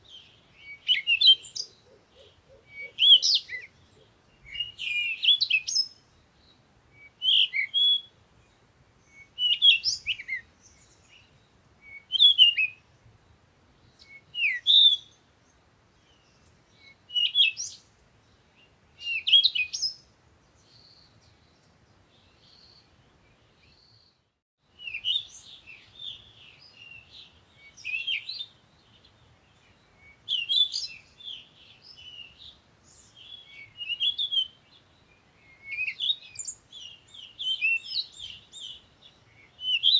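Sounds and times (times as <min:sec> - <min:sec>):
songbird chirping and trilling: 0:00.0 - 0:39.9.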